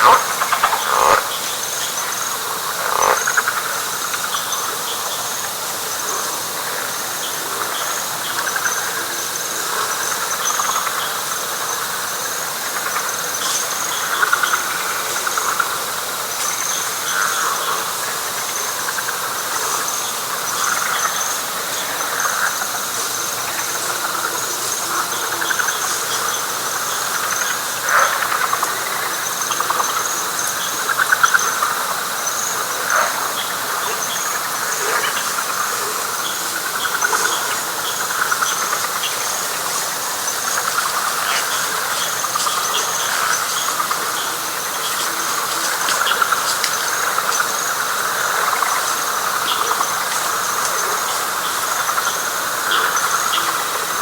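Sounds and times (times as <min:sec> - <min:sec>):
frog chorus: 0:00.0 - 0:54.0
insect trill: 0:00.0 - 0:54.0.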